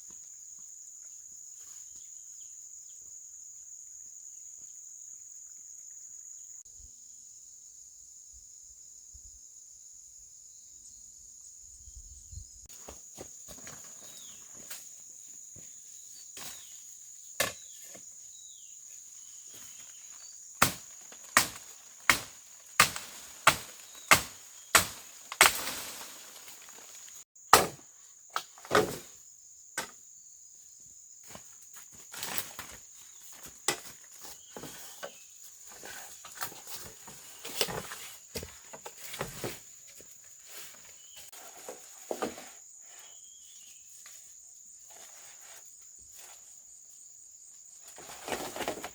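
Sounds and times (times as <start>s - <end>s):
insects droning: 0.0s - 48.9s
sharp chopping knocks: 20.6s - 25.8s, 27.5s - 27.8s
rustling: 20.8s - 27.2s.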